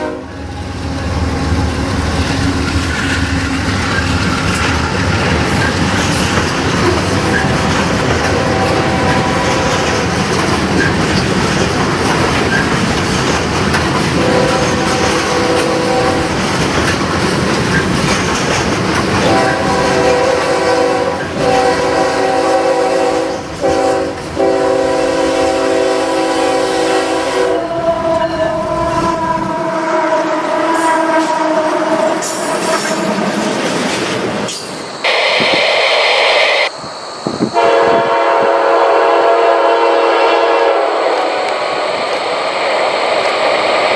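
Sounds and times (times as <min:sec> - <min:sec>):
locomotive air horn chord: 0:00.0 - 0:00.5, 0:08.1 - 0:09.7, 0:14.2 - 0:16.3, 0:19.2 - 0:32.0, 0:37.5 - 0:41.0
train rumble and rail clatter: 0:00.0 - 0:43.9.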